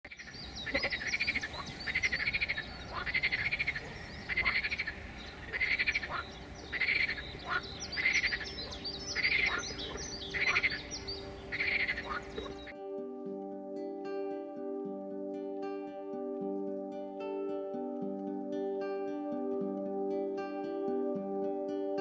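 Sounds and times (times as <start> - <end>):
pulsed trilling animal call: 0.7 - 12.7.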